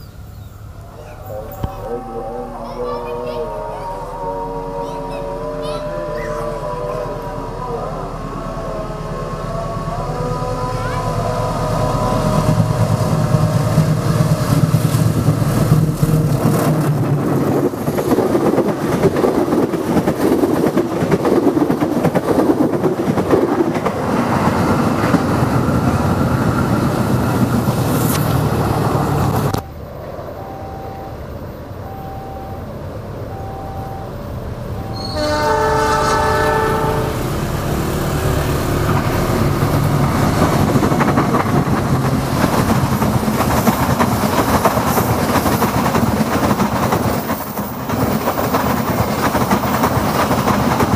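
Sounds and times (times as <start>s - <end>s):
train engine and wheels rumbling: 0.0s - 50.9s
train air horn: 0.8s - 14.4s, 34.8s - 37.9s
multi-tone horn blast: 34.8s - 37.6s.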